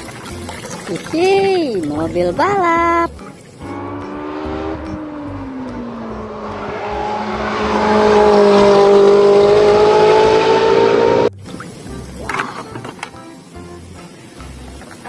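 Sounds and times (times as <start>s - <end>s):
race car engine revving: 3.6s - 11.4s.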